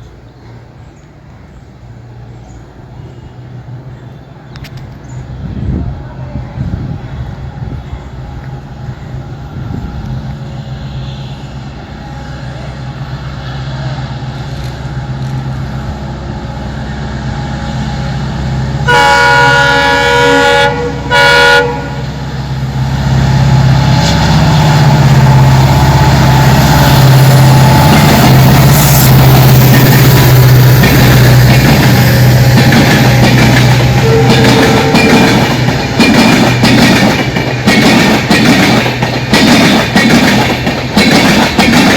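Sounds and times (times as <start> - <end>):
train passing with rail noise: 0.0 - 41.9
train horn: 18.8 - 22.2, 34.0 - 35.6.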